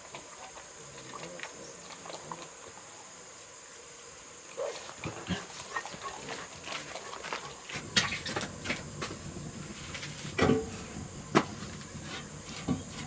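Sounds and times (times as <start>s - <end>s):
pigs grunting and snuffling: 4.6s - 9.6s.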